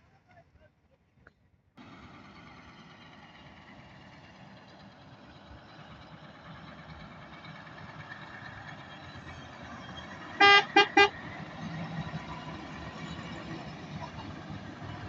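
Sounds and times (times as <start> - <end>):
engines idling: 1.8 - 15.0
vehicle horn toots: 10.4 - 11.2.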